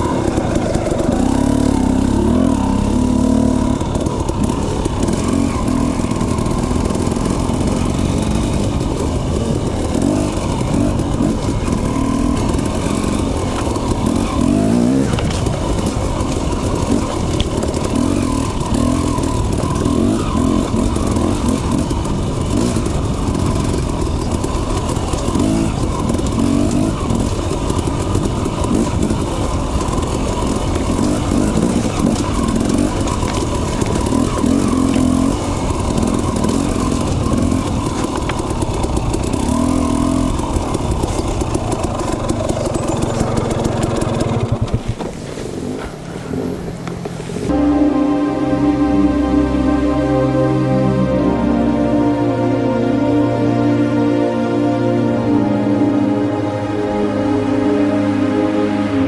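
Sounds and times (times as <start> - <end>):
dirt bike engine revving: 0.0 - 40.5.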